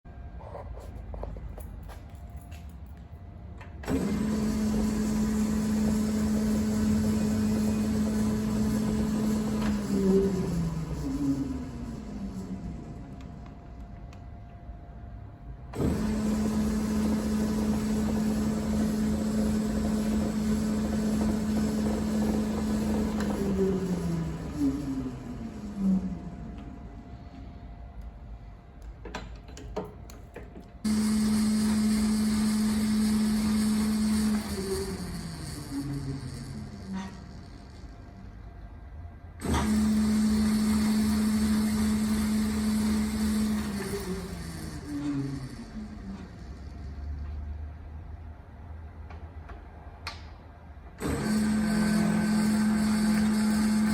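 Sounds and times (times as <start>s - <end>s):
metal lathe motor humming: 3.8s - 13.5s, 15.7s - 27.0s, 30.8s - 38.3s, 39.4s - 47.2s, 51.0s - 53.9s.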